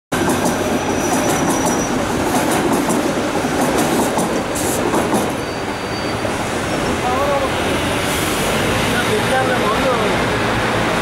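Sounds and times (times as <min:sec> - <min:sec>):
train rumbling on rails: 0:00.1 - 0:11.0
high wheel squeal: 0:00.6 - 0:02.1, 0:05.2 - 0:07.2.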